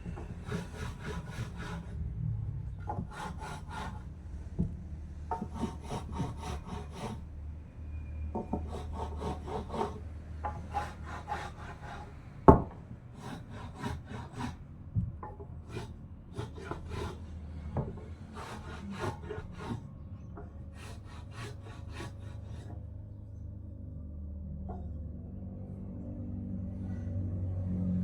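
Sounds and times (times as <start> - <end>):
hand tool scraping wood: 0.0 - 1.9, 2.9 - 4.0, 5.3 - 7.3, 8.4 - 10.0, 10.6 - 12.2, 13.2 - 14.6, 15.6 - 17.3, 18.3 - 19.8, 20.7 - 22.8.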